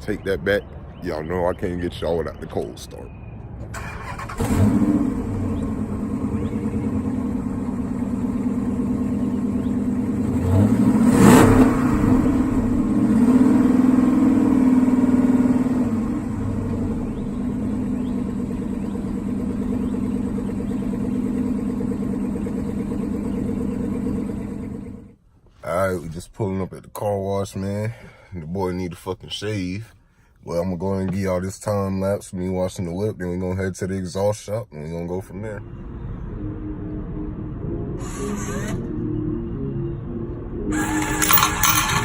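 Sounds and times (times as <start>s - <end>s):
car engine idling: 3.6s - 10.4s, 12.3s - 25.4s.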